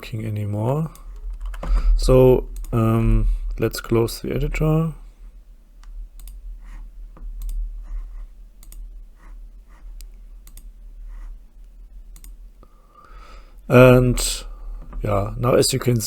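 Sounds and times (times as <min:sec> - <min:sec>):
low steady hum: 0:00.0 - 0:16.0
computer mouse and keyboard clicks: 0:06.2 - 0:11.3, 0:12.1 - 0:12.4.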